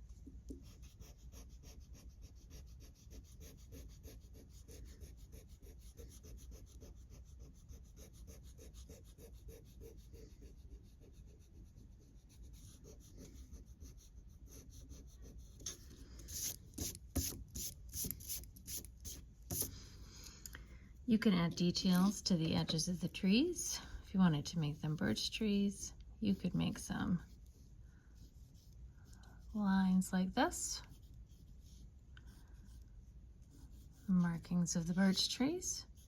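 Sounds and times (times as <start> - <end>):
eraser rubbing on paper: 0.6 - 19.7.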